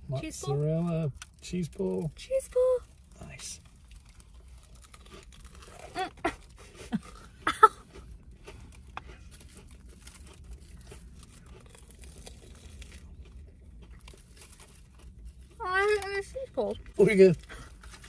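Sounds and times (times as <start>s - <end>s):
crunchy chewing: 2.9s - 15.6s.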